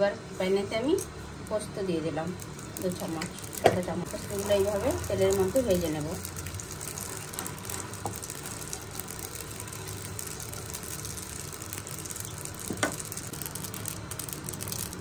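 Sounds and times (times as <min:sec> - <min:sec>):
steady low hum: 0:00.0 - 0:15.0
seeds sizzling in hot oil: 0:00.8 - 0:15.0
spatula stirring: 0:02.4 - 0:15.0.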